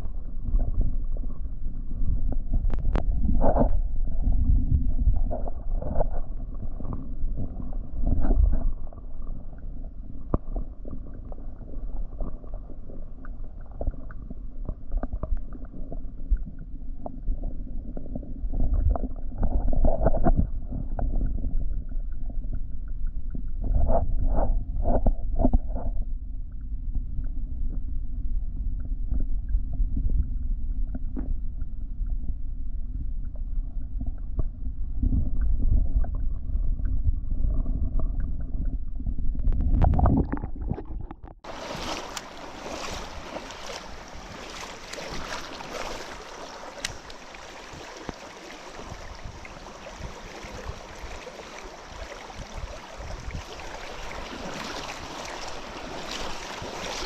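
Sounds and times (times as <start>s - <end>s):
muffled low rumbling: 0.0s - 19.5s, 20.3s - 41.6s
wind: 0.0s - 40.2s, 41.2s - 57.0s
rushing water: 39.7s - 57.0s
kayak knocks and bumps: 41.4s - 47.3s.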